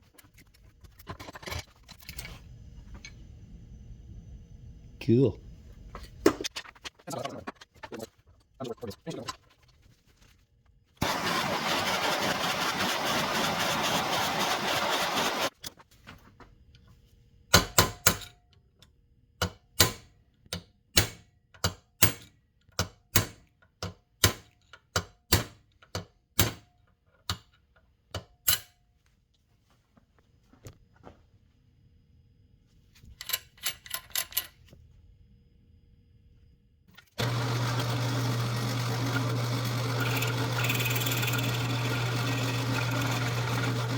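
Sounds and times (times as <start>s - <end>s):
power tool motor humming: 11.0s - 15.5s, 37.2s - 43.9s.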